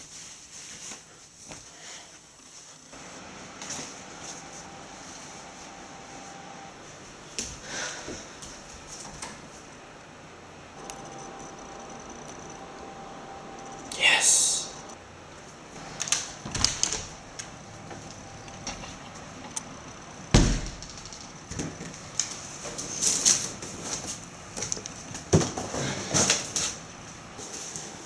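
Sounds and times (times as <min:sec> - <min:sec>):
heavy thump: 0:20.3 - 0:20.9.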